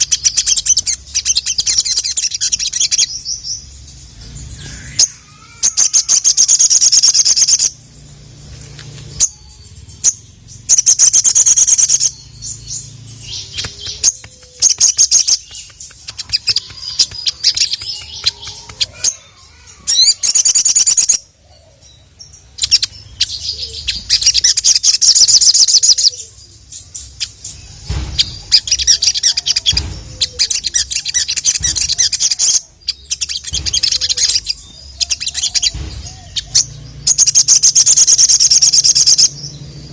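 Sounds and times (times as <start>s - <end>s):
bird singing rattling trills: 0.0s - 39.9s
bird chips: 8.4s - 39.9s.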